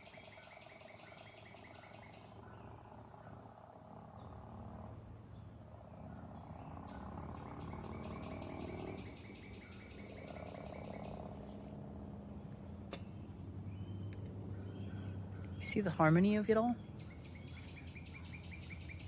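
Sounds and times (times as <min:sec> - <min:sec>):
crickets trilling: 0:00.0 - 0:19.0
faint low hum: 0:00.0 - 0:19.0
rapid pulsed insect call: 0:00.0 - 0:19.0.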